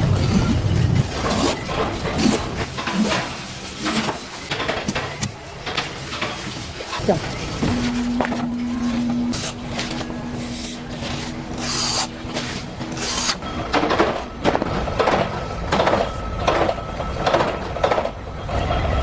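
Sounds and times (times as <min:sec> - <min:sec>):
rasping hand filing strokes: 0:11.5 - 0:12.2.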